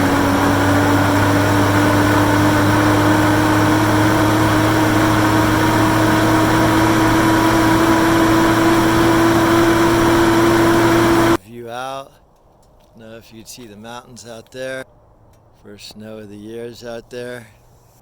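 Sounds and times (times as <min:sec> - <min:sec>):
rising whine: 0:00.0 - 0:11.4
vehicle engine and road noise: 0:00.0 - 0:11.4, 0:13.5 - 0:18.0.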